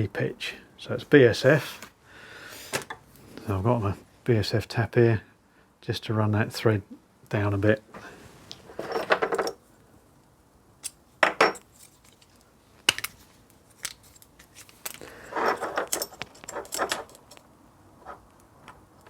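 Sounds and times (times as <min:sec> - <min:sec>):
small metal tools clinking: 0:08.7 - 0:09.6, 0:14.9 - 0:17.4.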